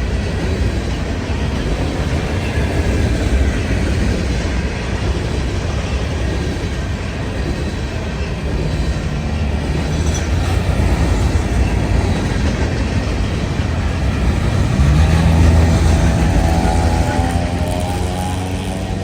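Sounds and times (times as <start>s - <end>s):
train cars rumbling: 0.0s - 19.0s
wheels clattering on rails: 0.0s - 19.0s
steady pitched drone: 13.6s - 19.0s.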